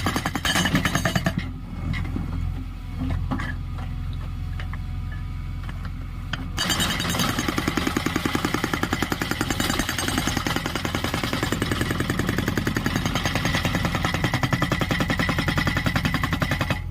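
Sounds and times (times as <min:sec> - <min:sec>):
hydraulic rock breaker hammering: 0:00.0 - 0:01.5, 0:06.6 - 0:16.9
diesel engine running: 0:10.1 - 0:16.9.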